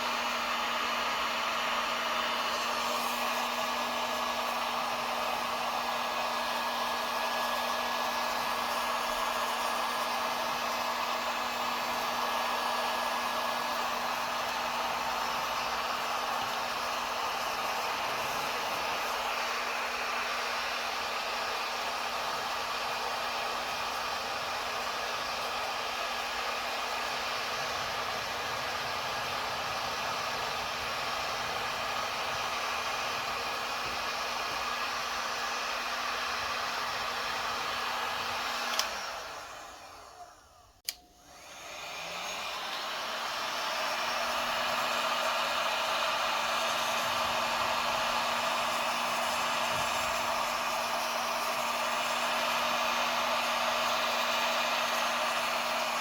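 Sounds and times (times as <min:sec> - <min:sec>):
heat gun blowing with motor hum: 0:00.0 - 0:56.0
heat gun switch click: 0:38.6 - 0:39.0, 0:40.8 - 0:41.1.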